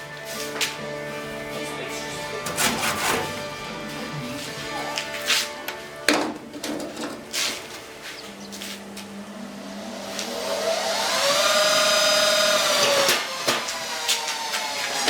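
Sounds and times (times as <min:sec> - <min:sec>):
grinder motor whining: 0:09.1 - 0:15.0.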